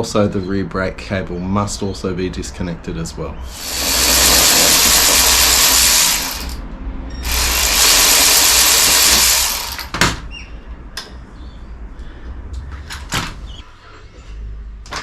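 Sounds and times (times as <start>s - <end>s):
power tool running: 3.5s - 6.6s, 7.2s - 10.0s.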